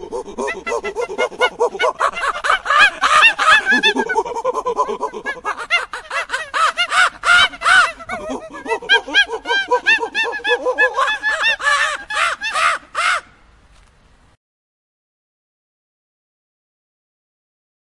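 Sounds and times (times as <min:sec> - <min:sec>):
monkeys chattering: 0:00.0 - 0:13.3.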